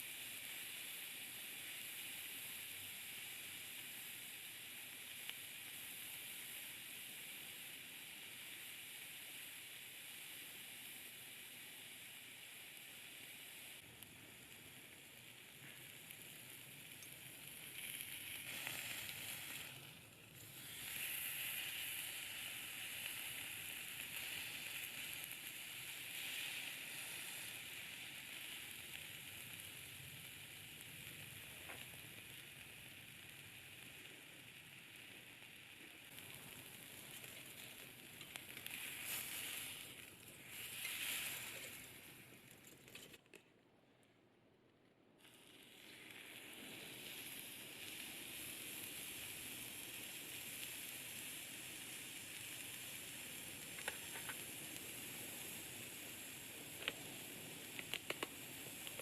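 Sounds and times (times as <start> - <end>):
steak sizzling over fire: 0.0 - 42.7, 45.2 - 59.0.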